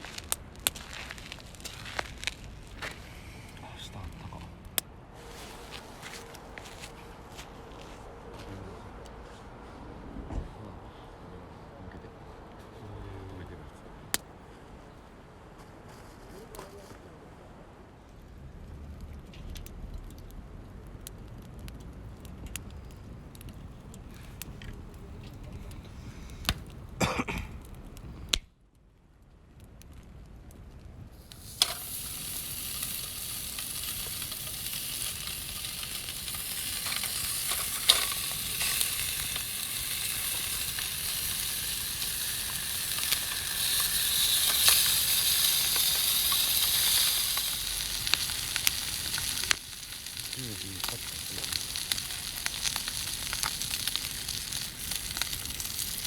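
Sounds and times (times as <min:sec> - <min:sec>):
meat sizzling over fire: 0:00.0 - 0:07.3, 0:18.4 - 0:28.4, 0:31.0 - 0:56.0.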